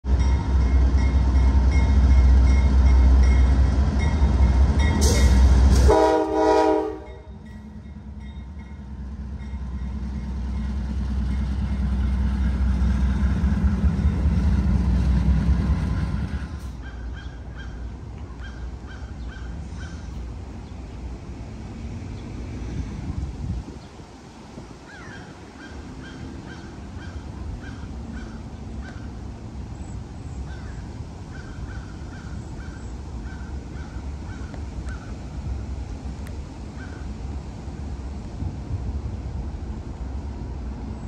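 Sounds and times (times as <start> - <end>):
freight train rumble: 0.0 - 41.0
multi-tone train horn blast: 4.9 - 7.6.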